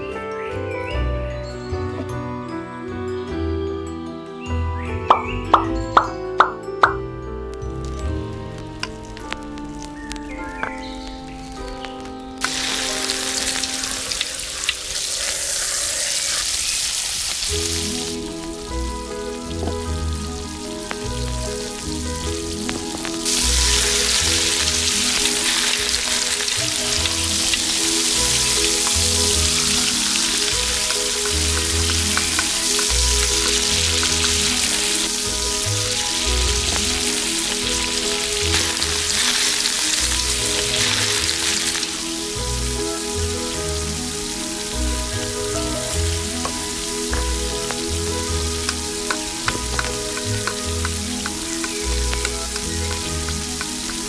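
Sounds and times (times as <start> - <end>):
background music with steady beat: 0.0 - 13.9
ingredients sizzling in hot oil: 7.7 - 54.0.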